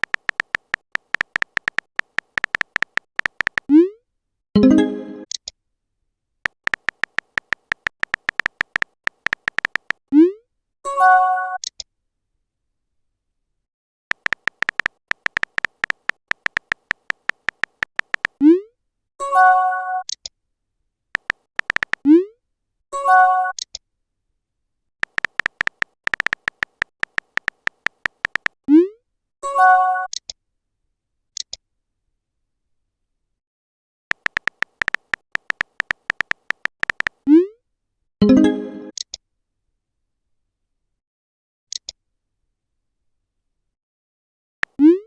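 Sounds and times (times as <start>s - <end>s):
rapid electronic ticks: 0.0s - 3.7s, 6.5s - 10.0s, 14.1s - 18.4s, 21.2s - 22.0s, 25.0s - 28.6s, 34.1s - 37.2s.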